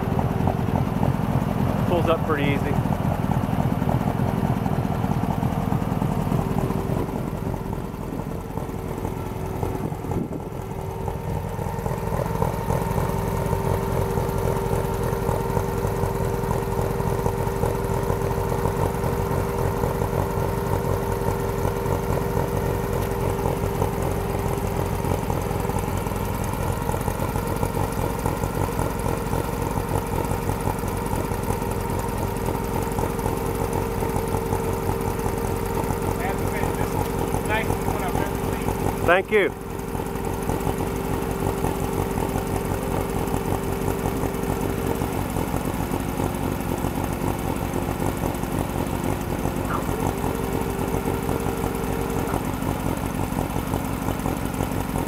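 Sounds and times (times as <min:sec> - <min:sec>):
engine idling: 0:00.0 - 0:55.0
steady whine: 0:35.1 - 0:54.5.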